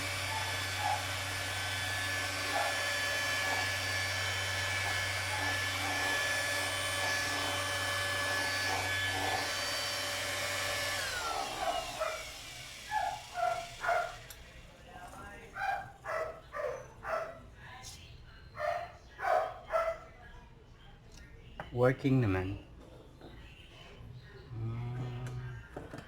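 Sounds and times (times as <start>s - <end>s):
orbital sander running: 0.0s - 14.4s
dog barking: 0.2s - 1.1s, 2.5s - 2.9s, 11.3s - 14.3s, 15.6s - 17.5s, 18.6s - 20.2s.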